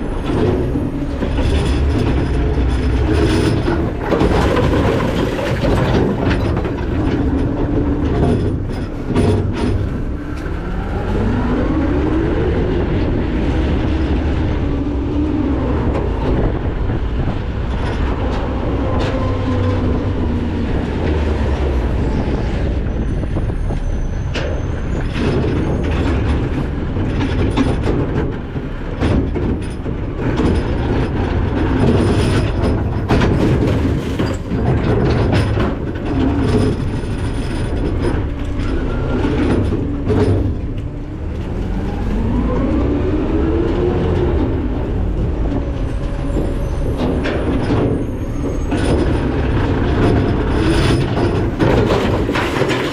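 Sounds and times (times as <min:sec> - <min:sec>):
metal clanks and crunches: 0:00.0 - 0:10.6, 0:23.0 - 0:42.4, 0:44.2 - 0:52.9
garbage truck packer rumbling: 0:00.0 - 0:52.9.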